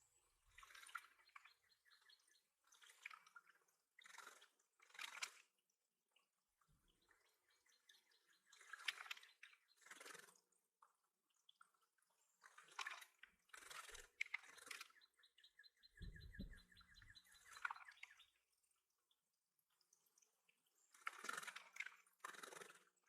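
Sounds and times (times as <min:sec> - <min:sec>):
songbird trill: 0:00.6 - 0:03.2, 0:06.8 - 0:10.3, 0:13.5 - 0:18.5.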